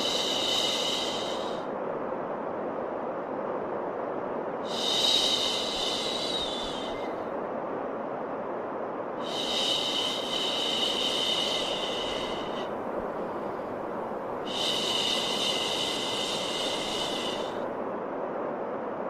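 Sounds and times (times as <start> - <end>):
steady white noise: 0.0 - 19.0.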